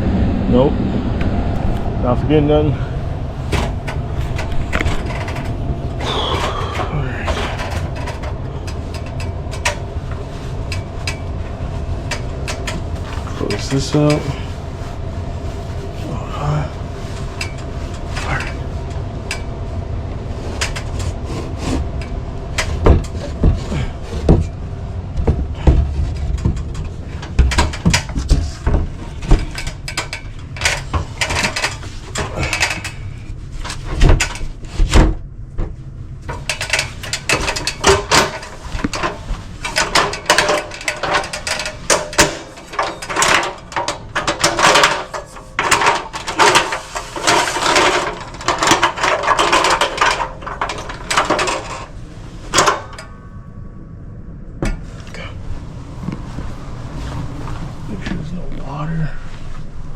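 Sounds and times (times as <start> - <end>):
air handler humming: 0.0 - 59.9
tools being handled: 3.5 - 14.6, 15.7 - 19.5, 20.4 - 24.6, 25.5 - 34.8, 36.3 - 53.1
metal panel knocks and rattles: 22.0 - 33.0, 33.7 - 53.3.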